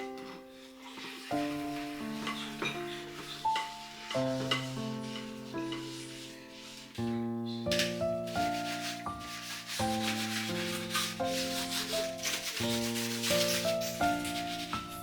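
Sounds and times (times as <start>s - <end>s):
piano music: 0.0s - 15.0s
rough scrubbing: 8.3s - 15.0s.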